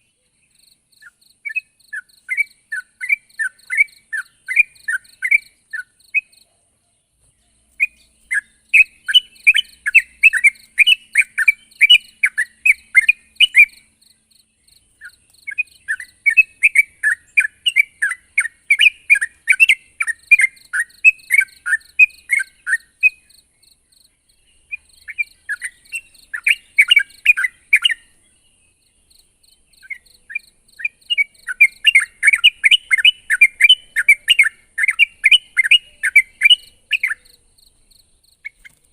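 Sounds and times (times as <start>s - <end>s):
bird singing rapid sweeping notes: 1.0s - 6.5s, 7.3s - 14.0s, 14.6s - 37.4s.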